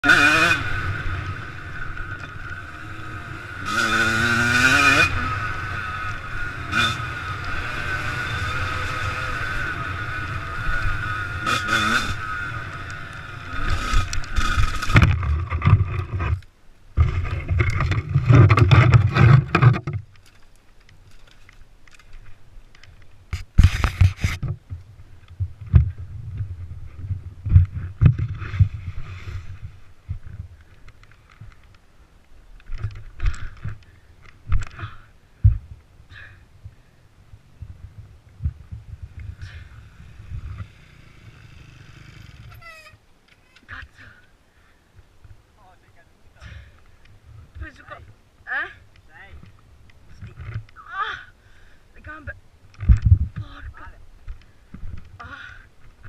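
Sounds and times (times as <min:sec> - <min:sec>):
dirt bike engine revving: 0:00.0 - 0:16.2, 0:39.5 - 0:42.9
wind rush on microphone: 0:52.8 - 0:54.0.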